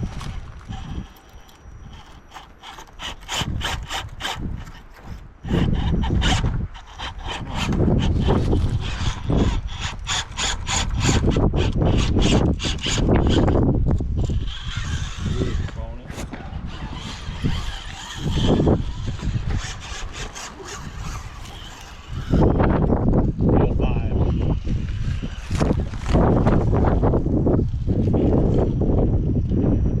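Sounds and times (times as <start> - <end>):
sharp clicks and creaks: 0.0 - 23.0.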